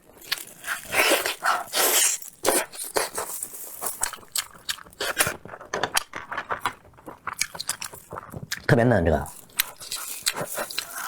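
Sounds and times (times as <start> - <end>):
person chewing meat: 0.0 - 11.0.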